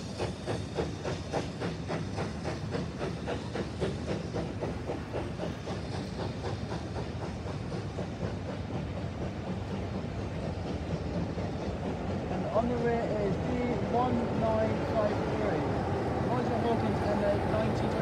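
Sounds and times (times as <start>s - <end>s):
steam hissing: 0.0s - 18.0s
steam locomotive chuffing: 0.0s - 18.0s.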